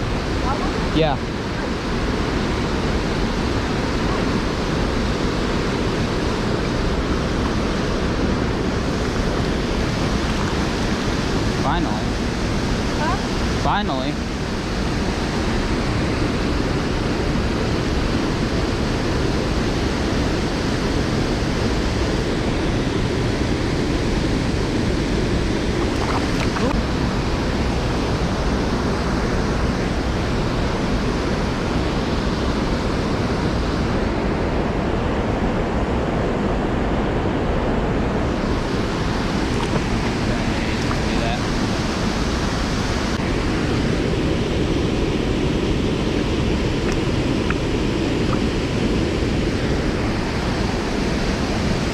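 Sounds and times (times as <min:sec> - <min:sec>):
waterfall roaring: 0:25.8 - 0:26.8.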